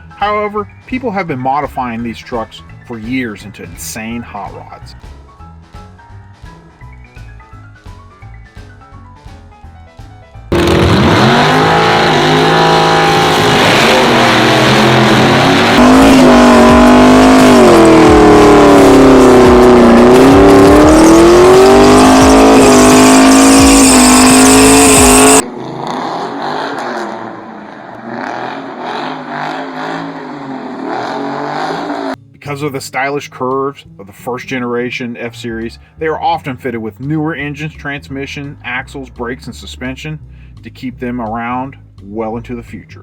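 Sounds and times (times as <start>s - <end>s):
pickup truck engine revving: 10.5s - 32.2s.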